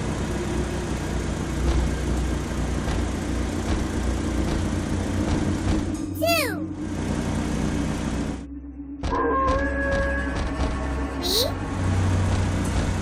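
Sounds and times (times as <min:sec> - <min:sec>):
vehicle engine drone: 0:00.0 - 0:13.0.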